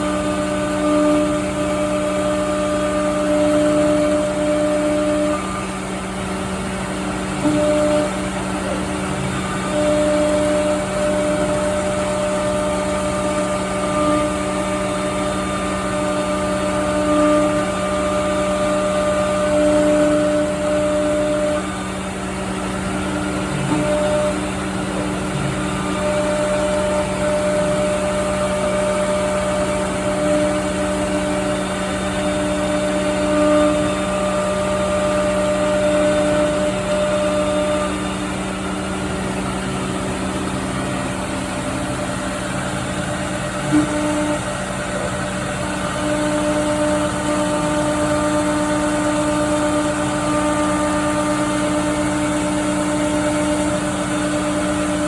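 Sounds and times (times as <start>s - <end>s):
cnc router humming: 0.0s - 55.0s.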